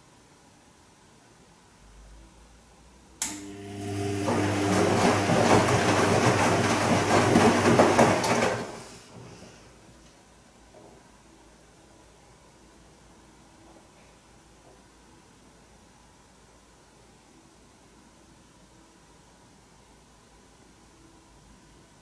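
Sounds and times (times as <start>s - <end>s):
washing machine click: 3.2s - 8.8s
washing machine motor hum: 3.2s - 9.9s.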